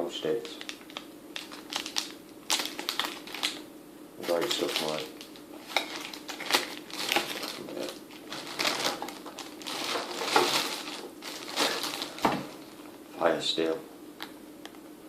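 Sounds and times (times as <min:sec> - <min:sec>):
packaging crinkling and rustling: 0:00.4 - 0:03.6, 0:04.2 - 0:13.0.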